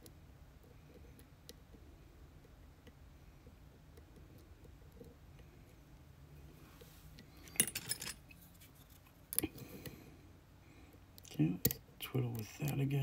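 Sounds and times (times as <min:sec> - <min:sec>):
metallic clinks and rattles: 0:07.4 - 0:09.0.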